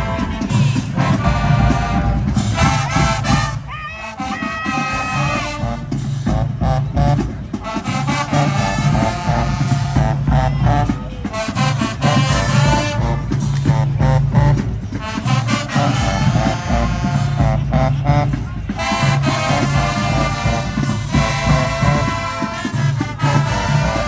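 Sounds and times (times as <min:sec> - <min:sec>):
brass melody: 0:00.0 - 0:24.0
driving drum beat: 0:00.0 - 0:24.0
low brass bass line: 0:00.0 - 0:24.0.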